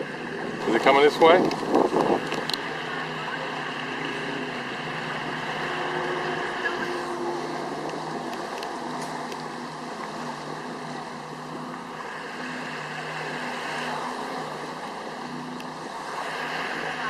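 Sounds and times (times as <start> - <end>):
boat engine running: 0.0 - 17.0
water rushing: 0.0 - 17.0
wind rushing: 0.3 - 2.5.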